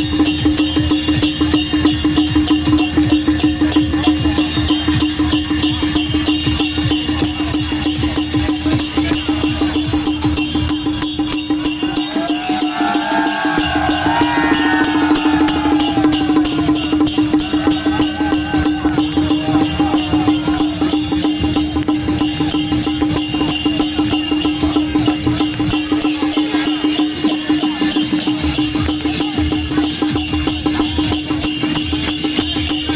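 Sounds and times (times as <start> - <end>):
fast percussion knocks: 0.0 - 32.9
wavering melody: 0.0 - 32.9
loud held tone: 11.3 - 24.5.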